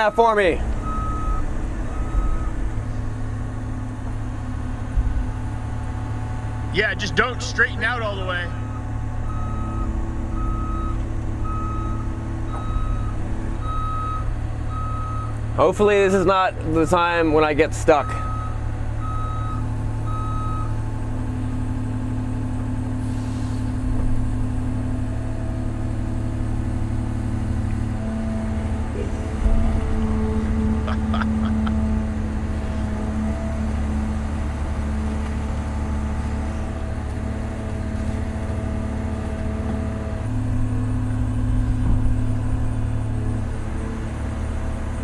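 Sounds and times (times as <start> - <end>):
travel alarm beeping: 0.0 - 2.6, 8.5 - 15.4, 18.0 - 20.8
excavator diesel engine running: 0.0 - 45.0.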